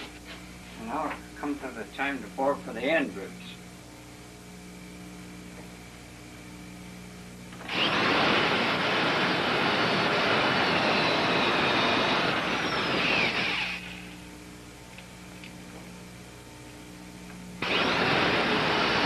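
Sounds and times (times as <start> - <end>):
electric drill boring wood: 7.5 - 14.2, 17.6 - 19.0.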